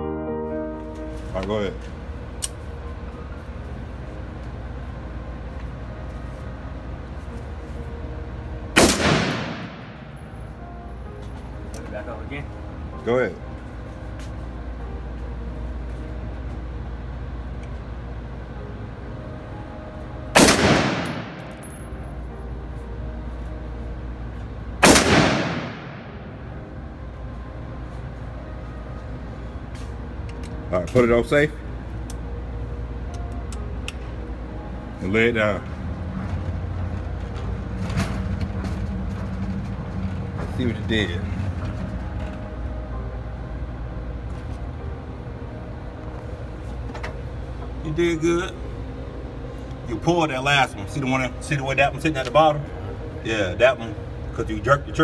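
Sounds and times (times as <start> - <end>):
steady low hum: 0.0 - 55.0
rifle shot echoing indoors: 8.8 - 10.4, 20.4 - 21.9, 24.8 - 26.4.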